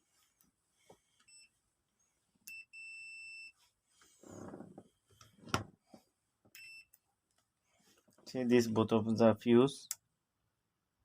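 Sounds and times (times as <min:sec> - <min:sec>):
multimeter beep: 0:02.5 - 0:03.6, 0:06.6 - 0:07.0.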